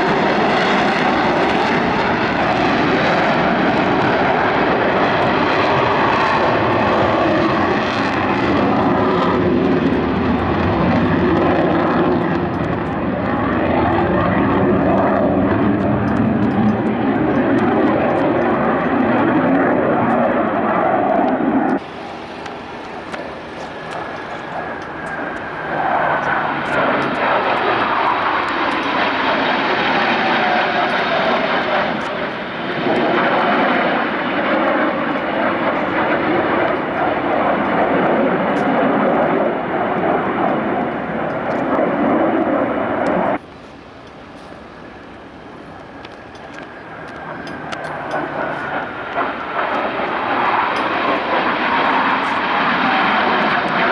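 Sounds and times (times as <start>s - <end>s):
jet engines roaring: 0.0s - 53.9s
jet flyby whine: 0.0s - 53.9s.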